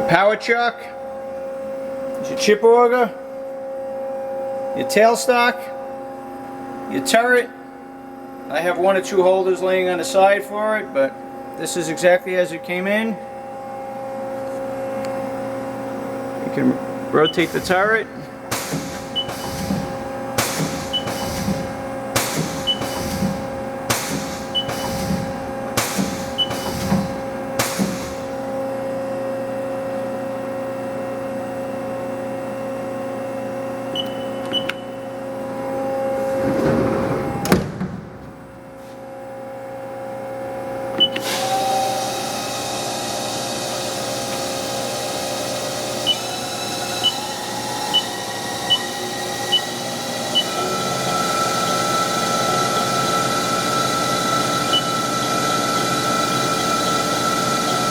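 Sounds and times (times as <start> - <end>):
steady machine hum: 0.0 - 57.9
short control beeps: 17.2 - 17.6, 34.0 - 34.9
lathe turret clunking: 17.2 - 28.5, 36.0 - 38.8, 41.0 - 57.9
spindle climbing whine: 44.3 - 57.9.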